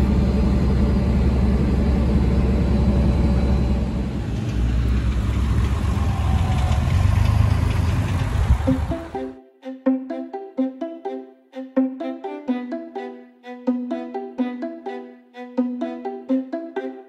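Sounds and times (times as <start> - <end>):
tractor engine rumbling: 0.0 - 9.2.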